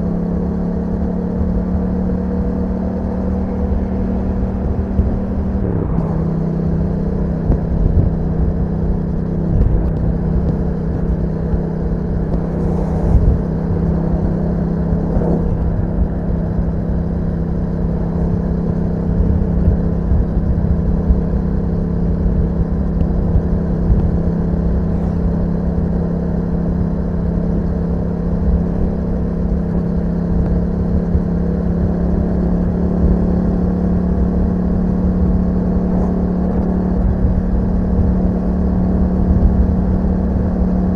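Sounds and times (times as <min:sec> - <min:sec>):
motorcycle engine steady revs: 0:00.0 - 0:40.9.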